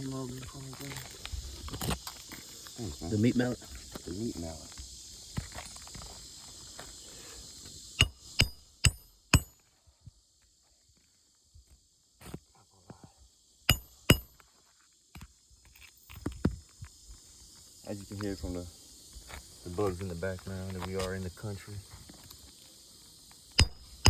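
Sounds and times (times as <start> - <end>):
hammer driving nails into shingle: 8.0 - 9.6, 13.7 - 14.4, 23.6 - 24.0.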